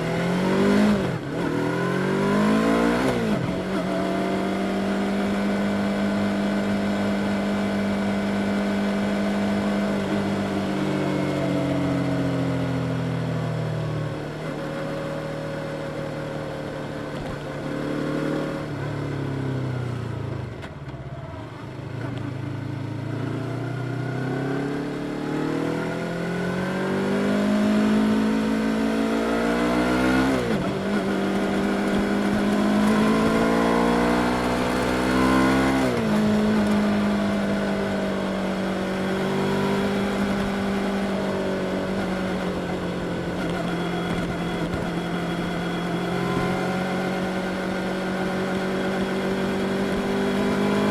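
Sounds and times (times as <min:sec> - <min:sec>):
motorcycle engine revving: 0:00.0 - 0:13.3, 0:14.1 - 0:50.9.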